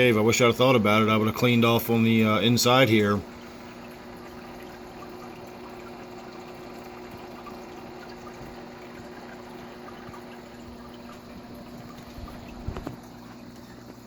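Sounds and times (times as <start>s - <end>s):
steady low hum: 0.0s - 14.0s
water dripping: 2.1s - 14.0s.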